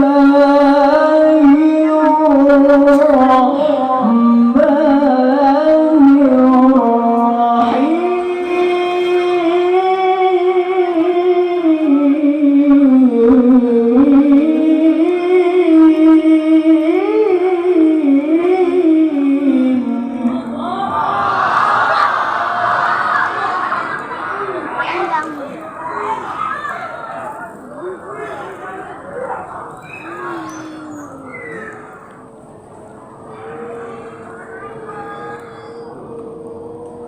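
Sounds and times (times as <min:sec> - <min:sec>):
man reciting melodically: 0:00.0 - 0:20.6
audience calling out: 0:20.5 - 0:37.0.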